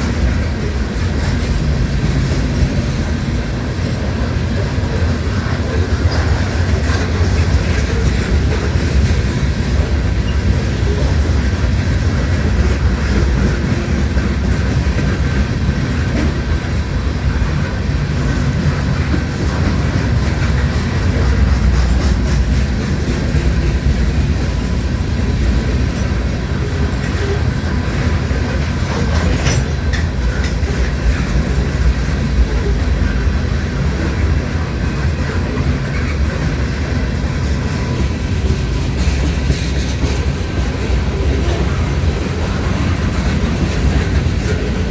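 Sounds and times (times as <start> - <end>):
freight train rumbling past: 0.0 - 44.9
ring of steel wheels on rail: 0.0 - 44.9
wheels clacking over rail joints: 0.0 - 44.9.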